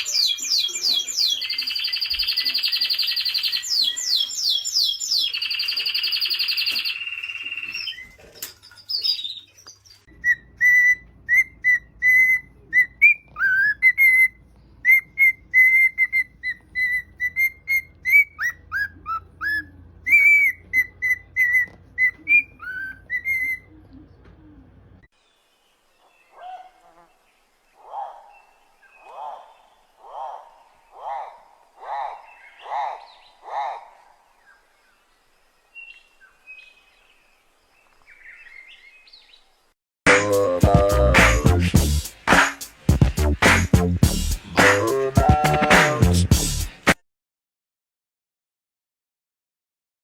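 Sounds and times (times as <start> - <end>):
birdlike whistling and chirping: 10.2 - 23.7.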